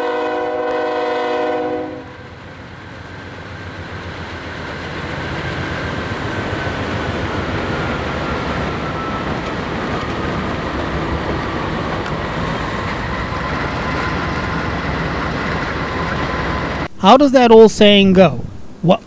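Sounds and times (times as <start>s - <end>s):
train wheels on rails: 0.0s - 16.9s.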